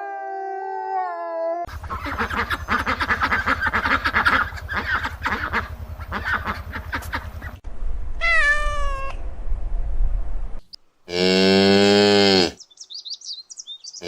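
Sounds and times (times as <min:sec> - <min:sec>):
low rumble: 0:01.7 - 0:10.7
cat meowing: 0:08.2 - 0:09.2.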